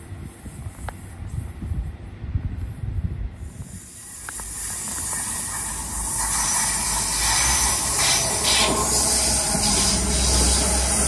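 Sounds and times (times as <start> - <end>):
train wheels hissing on rails: 2.5 - 11.0
low running drone: 4.2 - 11.0.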